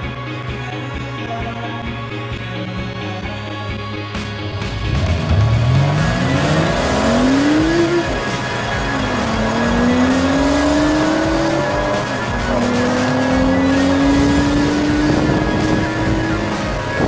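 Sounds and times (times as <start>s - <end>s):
car engine accelerating hard: 4.4s - 17.0s.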